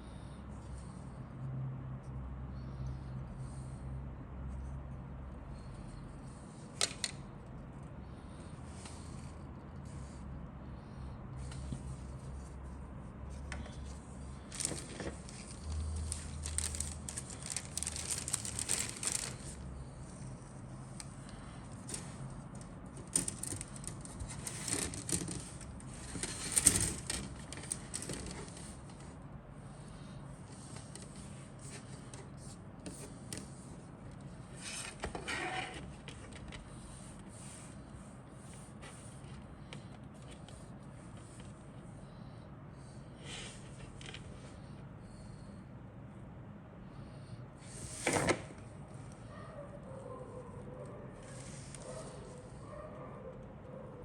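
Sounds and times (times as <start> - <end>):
plastic parts rustling and clicking: 14.5 - 19.6, 21.8 - 29.0.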